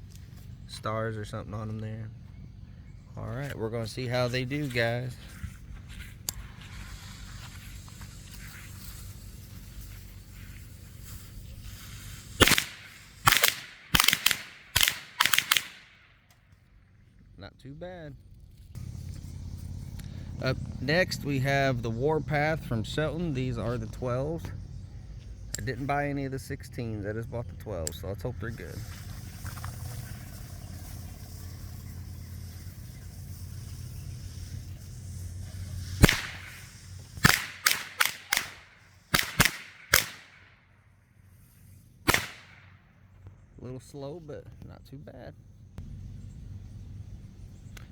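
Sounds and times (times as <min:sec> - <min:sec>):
low steady hum: 0:00.0 - 0:39.3, 0:42.6 - 0:47.9
firecrackers banging: 0:11.9 - 0:15.9, 0:31.3 - 0:40.4.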